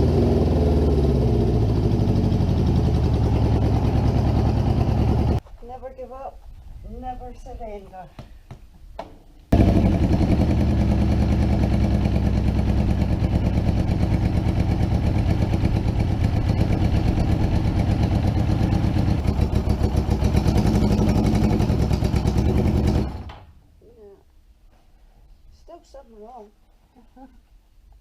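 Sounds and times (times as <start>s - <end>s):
motorcycle engine running: 0.0s - 5.4s, 9.6s - 23.4s.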